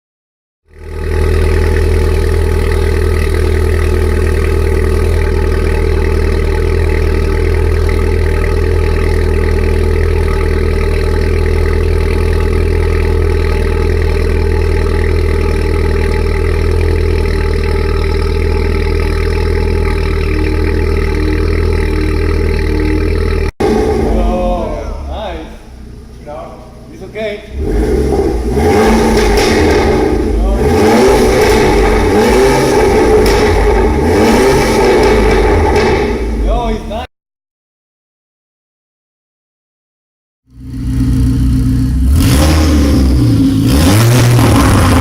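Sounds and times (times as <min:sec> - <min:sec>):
car engine idling loudly: 0:00.6 - 0:37.0, 0:40.5 - 0:45.0.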